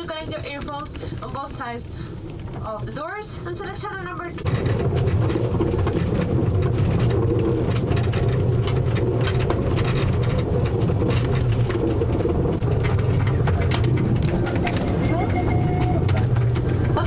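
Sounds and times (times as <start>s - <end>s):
train rumbling with rattling clicks: 0.0s - 17.0s.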